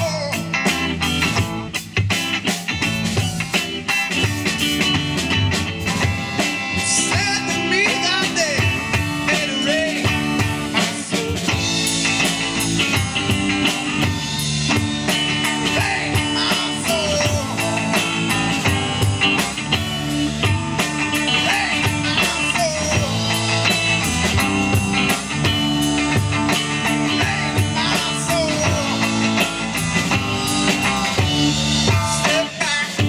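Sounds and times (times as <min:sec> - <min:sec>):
live blues-rock band: 0:00.0 - 0:33.0.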